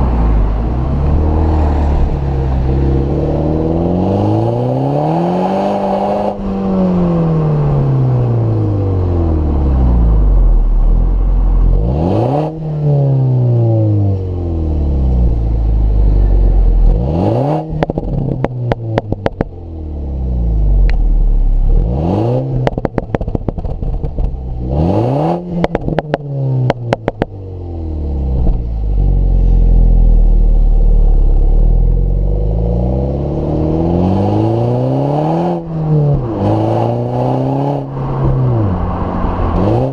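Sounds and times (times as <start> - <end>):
car engine revving: 0.0 - 39.9
exhaust pops and crackles: 17.8 - 19.6, 22.6 - 24.6, 25.6 - 27.4.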